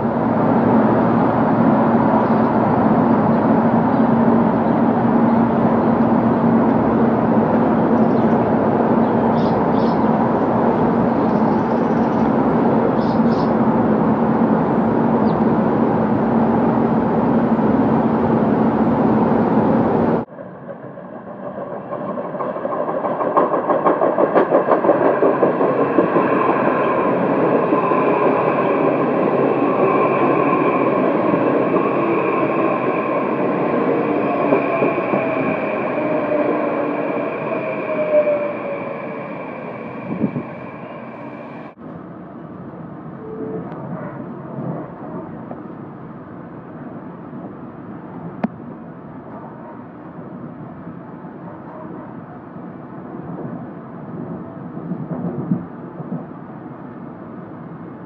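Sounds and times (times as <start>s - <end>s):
train wheel noise: 0.0s - 41.8s, 53.2s - 57.0s
train whining tones: 0.0s - 41.8s, 43.0s - 44.7s
electric train pulling in: 0.0s - 48.0s.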